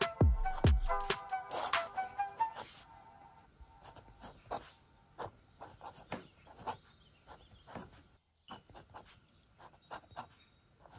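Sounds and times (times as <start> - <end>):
fountain pen scratching on paper: 1.5 - 1.8, 3.8 - 10.9.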